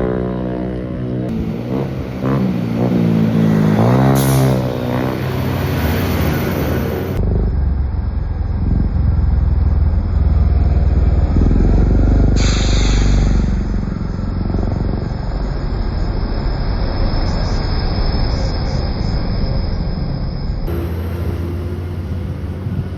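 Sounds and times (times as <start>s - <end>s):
scooter engine running: 0.0s - 12.3s
brief hiss: 12.4s - 13.8s.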